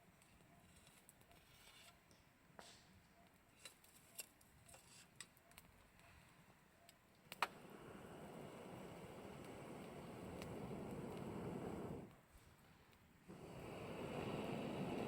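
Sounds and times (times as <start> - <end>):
campfire crackling: 6.9 - 15.0.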